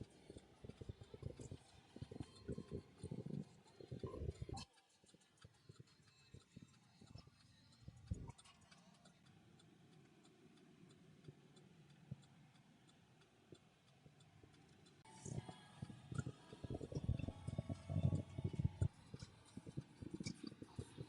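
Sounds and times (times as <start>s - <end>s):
rumble of noise: 0.0s - 4.6s, 15.0s - 21.0s
faint steady ticking: 0.0s - 21.0s.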